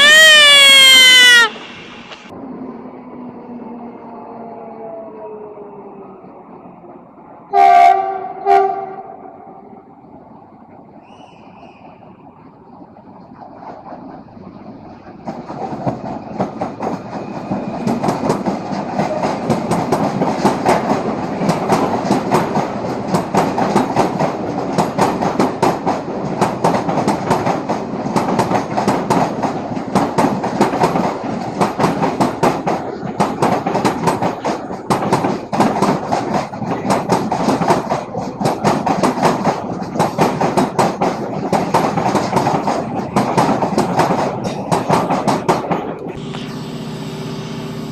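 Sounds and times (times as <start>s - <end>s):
train wheels clattering over rail joints: 13.4s - 46.1s.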